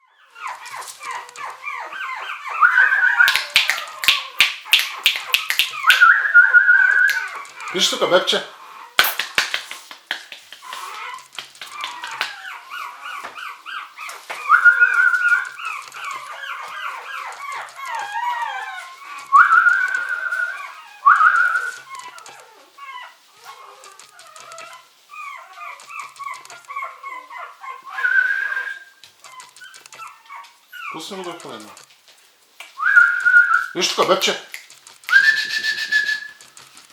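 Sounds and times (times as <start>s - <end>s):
puppy whimpering: 0.0s - 9.2s, 10.5s - 31.9s
finger snaps: 3.3s - 6.1s, 9.0s - 12.3s
thin whistled tone: 19.3s - 21.8s, 28.0s - 28.9s, 32.8s - 33.8s, 35.1s - 36.4s.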